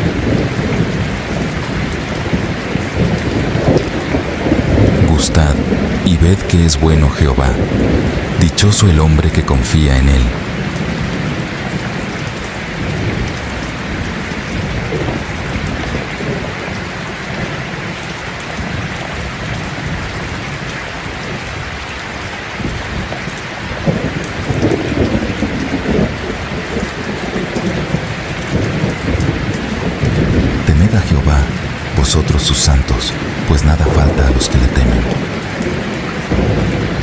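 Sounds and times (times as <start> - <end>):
rumbling thunder: 0.0 - 6.1, 7.4 - 8.5, 10.3 - 17.9, 22.6 - 30.7, 33.1 - 37.0
heavy rain: 0.0 - 37.0.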